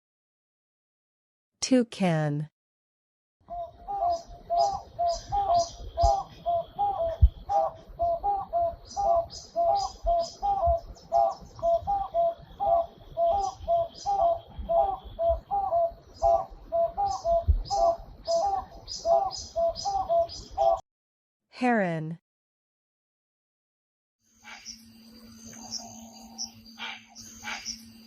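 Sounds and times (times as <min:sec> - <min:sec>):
toucan calling: 0:03.5 - 0:20.8, 0:25.5 - 0:27.9.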